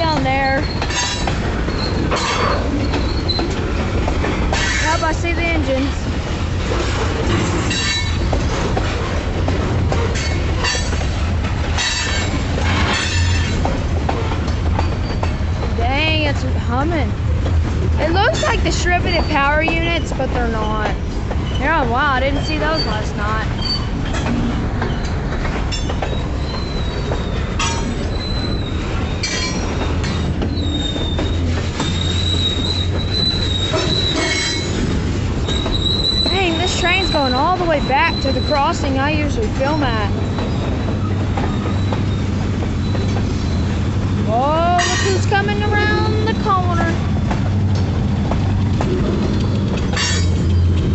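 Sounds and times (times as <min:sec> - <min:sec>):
diesel locomotive engine hum: 0:00.0 - 0:50.9
wheels squealing on rails: 0:00.0 - 0:50.9
metal clanks: 0:11.7 - 0:15.4, 0:48.8 - 0:50.9.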